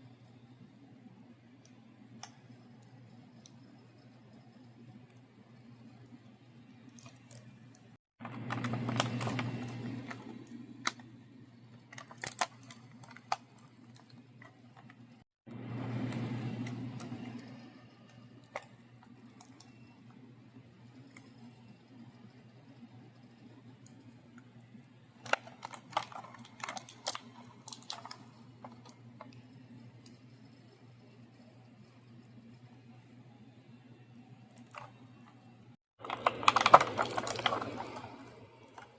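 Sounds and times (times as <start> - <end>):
low steady hum: 0.0 - 38.9
plastic packaging crackling: 8.2 - 11.1, 11.8 - 15.1, 25.2 - 29.4, 36.0 - 38.9.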